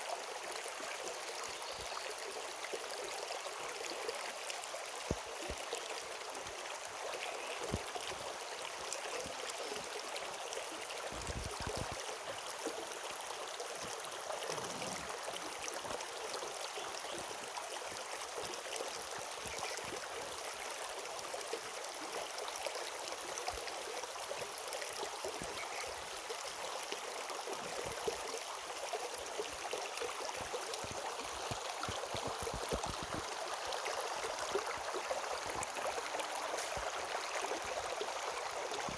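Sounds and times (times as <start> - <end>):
stream water rushing: 8.1 - 18.4, 28.6 - 38.9.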